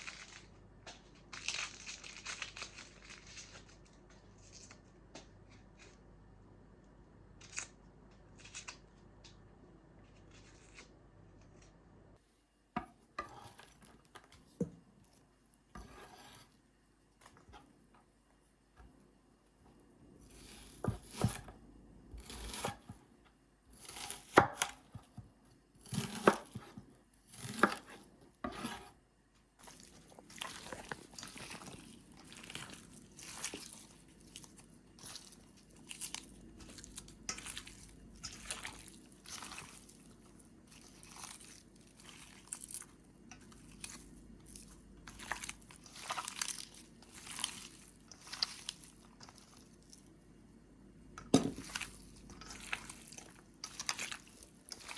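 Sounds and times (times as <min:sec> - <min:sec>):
knife cutting on a cutting board: 0:15.8 - 0:16.5, 0:20.2 - 0:21.5, 0:22.1 - 0:23.0, 0:23.7 - 0:24.8, 0:25.8 - 0:29.0.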